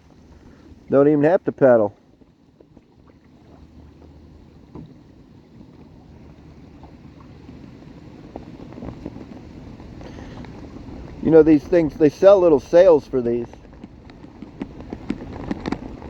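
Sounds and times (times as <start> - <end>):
faint water sounds: 0.0 - 16.0
small ticks: 8.3 - 11.1, 13.4 - 16.0.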